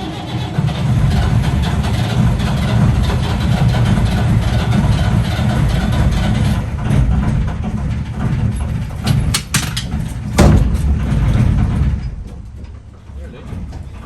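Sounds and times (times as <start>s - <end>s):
diesel engine idling: 0.0s - 12.9s
sharp knocks: 8.6s - 11.4s.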